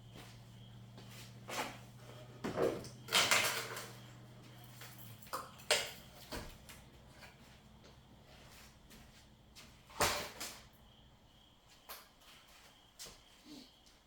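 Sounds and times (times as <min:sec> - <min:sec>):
handling rustles and knocks: 0:00.0 - 0:10.8
low steady hum: 0:00.0 - 0:11.6.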